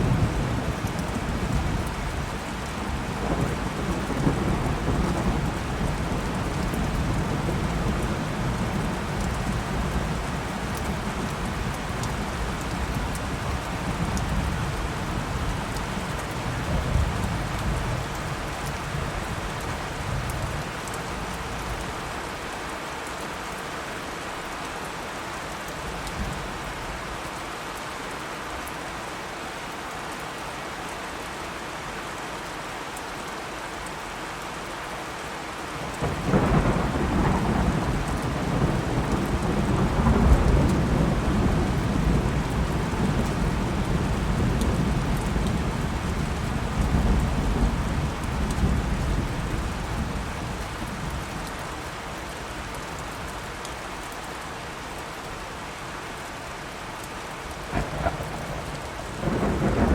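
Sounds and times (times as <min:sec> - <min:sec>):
steady rain: 0:00.0 - 0:59.9
thunder rumbling: 0:36.0 - 0:50.8, 0:57.6 - 0:59.9.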